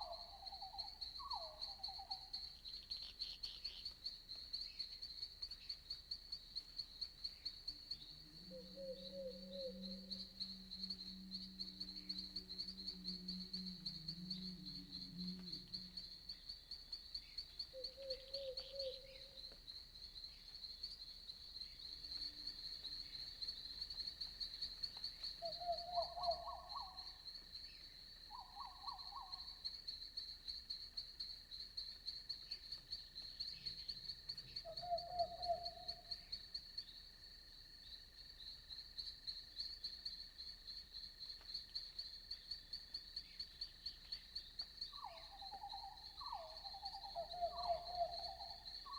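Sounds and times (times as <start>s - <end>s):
crickets trilling: 0.0s - 48.9s
frog calls: 8.4s - 16.0s, 25.4s - 27.2s, 34.6s - 36.1s, 45.0s - 48.9s.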